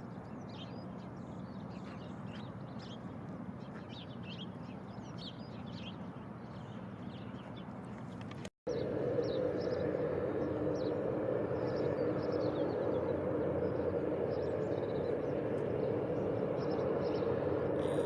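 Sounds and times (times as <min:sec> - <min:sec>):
small birds chirping: 0:00.0 - 0:18.0
steady drone with faint hum: 0:00.0 - 0:18.0
low rumble: 0:08.7 - 0:18.0.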